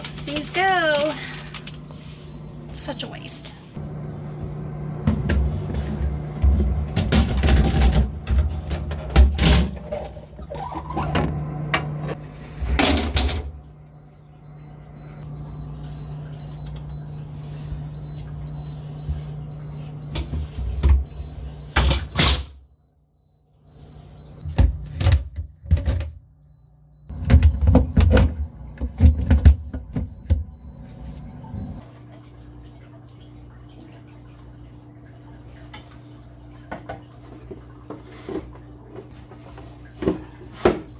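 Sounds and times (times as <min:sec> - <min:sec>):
steady low hum: 0:11.6 - 0:31.8
faint high beeping tone: 0:13.9 - 0:21.8.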